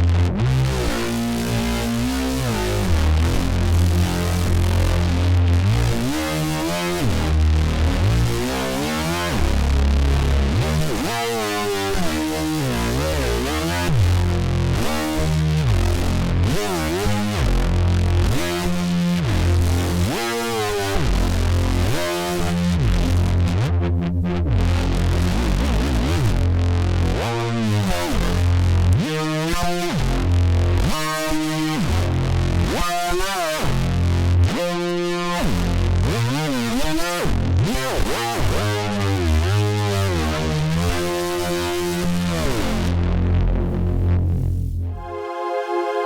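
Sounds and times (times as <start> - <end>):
synthesizer bass note: 41.8 - 46.0
gritty synth tone gliding in pitch: 42.2 - 46.0.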